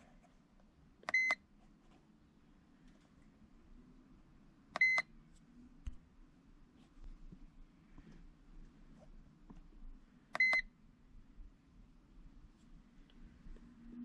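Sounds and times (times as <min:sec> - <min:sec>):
faint low hum: 0:00.0 - 0:14.0
electronic key beeps: 0:01.1 - 0:01.4, 0:04.8 - 0:05.0, 0:10.4 - 0:10.6.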